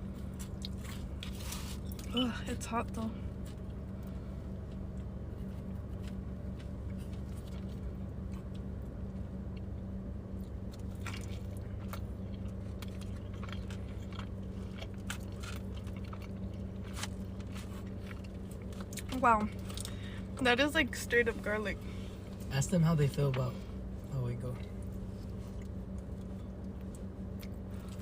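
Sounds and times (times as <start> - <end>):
chewing bread: 0.0 - 2.2, 3.3 - 20.0, 24.7 - 28.0
car engine hum: 0.0 - 28.0.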